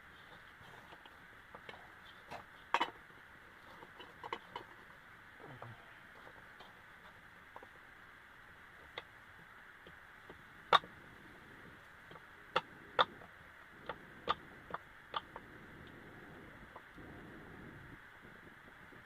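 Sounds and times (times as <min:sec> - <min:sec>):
pot boiling with hiss and pops: 0:00.0 - 0:19.0.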